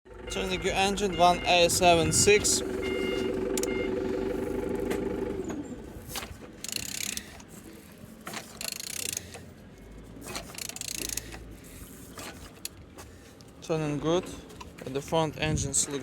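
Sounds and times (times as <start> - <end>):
ratchet wrench clicking: 6.6 - 7.5, 8.3 - 9.5, 10.2 - 12.8.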